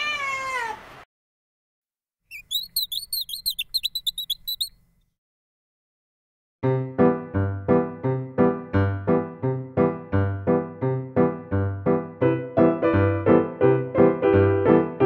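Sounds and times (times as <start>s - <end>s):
cat meowing: 0.0s - 0.8s
small bird twittering: 2.3s - 4.8s
piano music: 6.6s - 15.0s.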